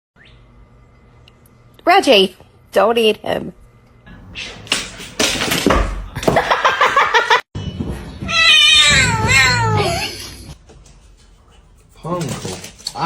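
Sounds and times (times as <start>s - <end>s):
cat yowling and meowing: 8.2s - 10.5s.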